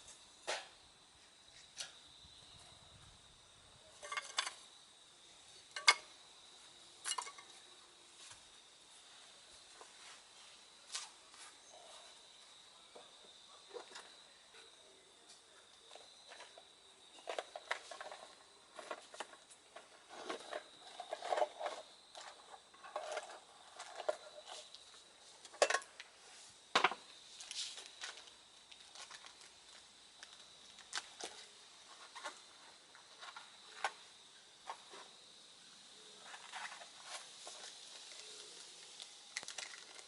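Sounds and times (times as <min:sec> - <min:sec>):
campfire crackling: 0:37.0 - 0:40.0
fire sharp pops and snaps: 0:37.9 - 0:40.0.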